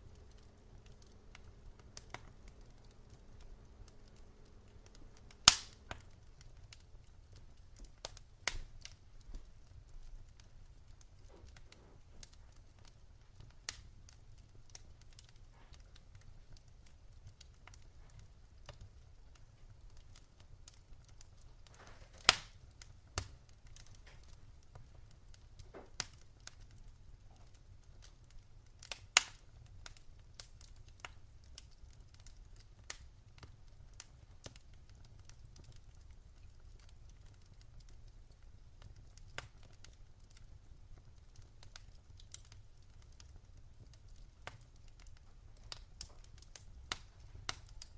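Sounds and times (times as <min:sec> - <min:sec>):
fire popping: 0:00.0 - 0:47.9
wood fire crackling: 0:00.0 - 0:47.9.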